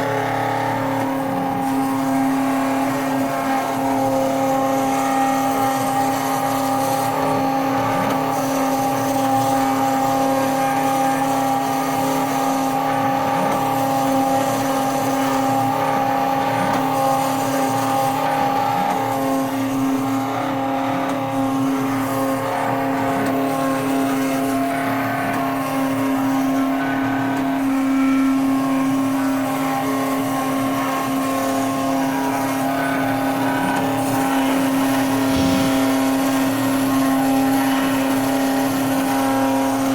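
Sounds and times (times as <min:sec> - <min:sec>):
spindle motor whine: 0:30.9 - 0:39.0
machine motors shifting tones: 0:34.9 - 0:36.7.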